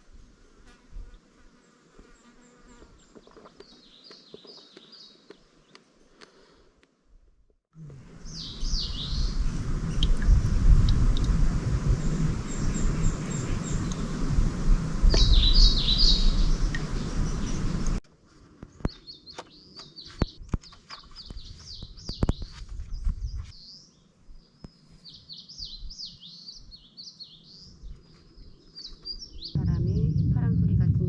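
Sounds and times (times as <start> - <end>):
small birds chirping: 1.7 - 6.6, 8.2 - 10.4, 15.0 - 18.0, 18.6 - 30.5
loud low rumbling noise: 29.6 - 31.0.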